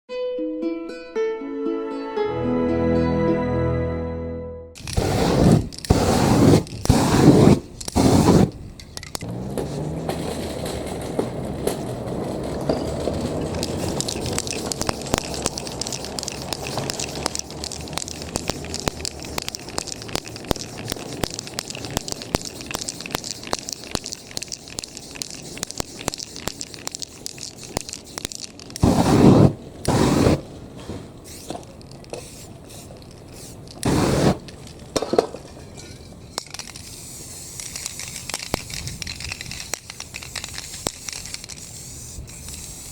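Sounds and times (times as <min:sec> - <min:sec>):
aerosol spray can hissing: 0:04.8 - 0:08.6, 0:13.5 - 0:30.5, 0:31.2 - 0:34.5, 0:36.6 - 0:42.9
crackling scraping noise: 0:04.8 - 0:42.9.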